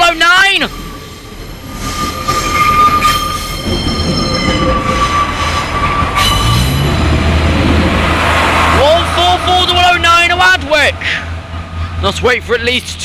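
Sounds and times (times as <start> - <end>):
train rumble: 0.0 - 13.0
train wheels squealing: 0.5 - 7.0.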